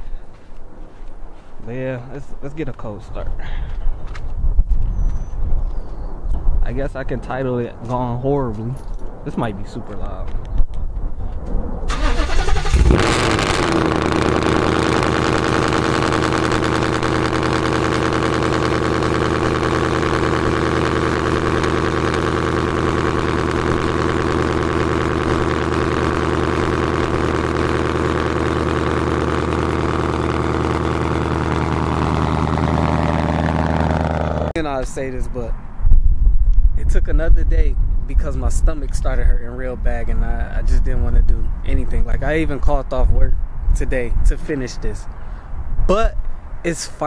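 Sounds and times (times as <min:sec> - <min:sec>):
car engine starting and idling: 0:11.9 - 0:34.6.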